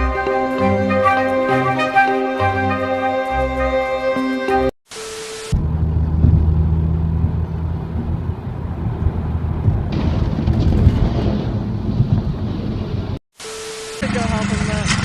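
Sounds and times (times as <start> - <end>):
road and tyre noise: 5.4 - 13.2
car engine hum: 5.6 - 10.6
brief steady tone: 13.4 - 14.4.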